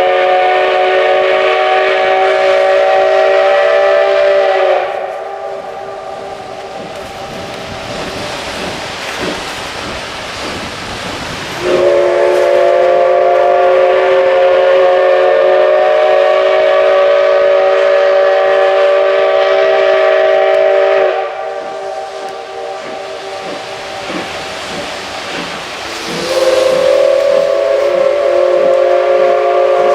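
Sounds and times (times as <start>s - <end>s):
steam locomotive whistle: 0.0s - 6.8s, 11.5s - 24.6s, 25.8s - 29.9s
steam hissing: 0.0s - 29.9s
train noise: 0.0s - 29.9s.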